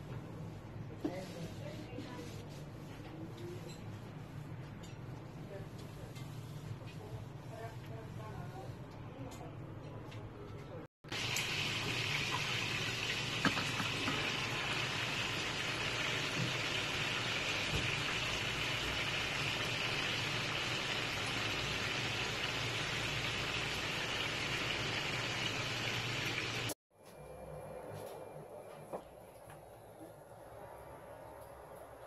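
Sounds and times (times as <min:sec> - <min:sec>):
food sizzling in a pan: 0:11.1 - 0:26.8.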